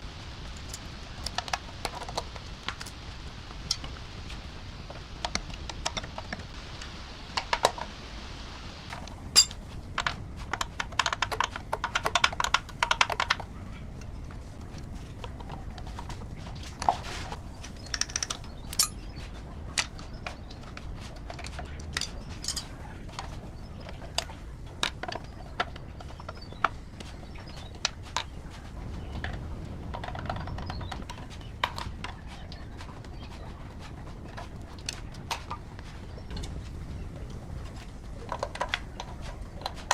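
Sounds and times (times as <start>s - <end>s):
steady low rumble: 0.0s - 39.9s
sharp clicks and taps: 8.9s - 14.1s.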